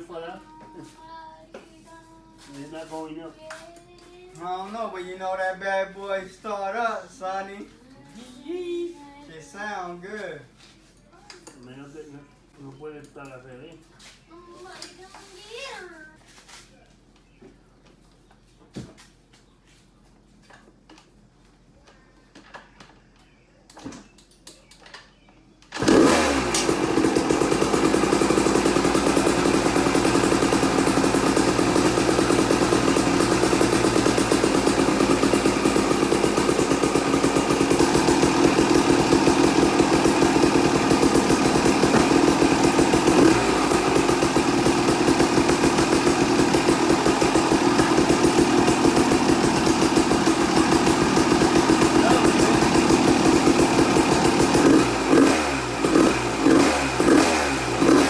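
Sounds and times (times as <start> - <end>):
two-stroke engine running: 25.7 - 58.0.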